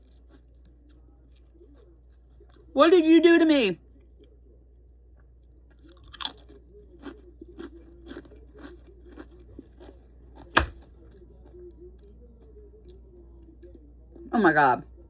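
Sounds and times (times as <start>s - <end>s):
person chewing crunchy chips: 0.0s - 0.6s, 5.7s - 10.8s.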